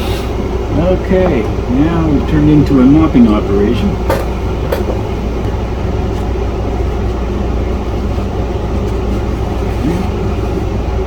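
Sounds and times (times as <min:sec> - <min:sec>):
hiss: 0:00.0 - 0:00.4
low mechanical hum: 0:00.0 - 0:11.0.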